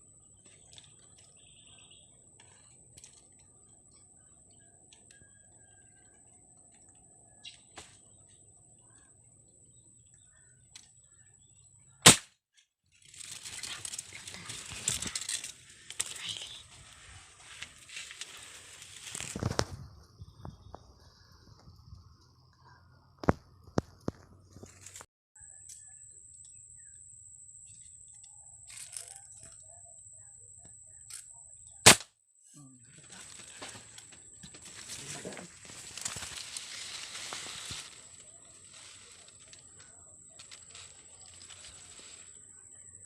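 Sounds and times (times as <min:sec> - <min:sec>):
small birds chirping: 0:00.2 - 0:12.0, 0:13.1 - 0:24.7
air gun shot: 0:12.0 - 0:12.3, 0:31.8 - 0:32.1
rustling crackling noise: 0:12.9 - 0:20.6, 0:23.3 - 0:25.1, 0:33.0 - 0:43.0.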